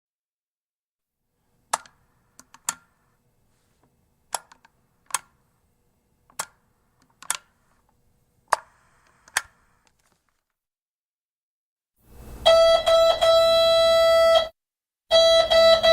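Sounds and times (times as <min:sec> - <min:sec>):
faint line noise hum: 0:01.3 - 0:10.1, 0:12.0 - 0:14.3
plastic clicks of intercom handset: 0:01.7 - 0:03.0, 0:04.3 - 0:05.4, 0:06.3 - 0:07.6.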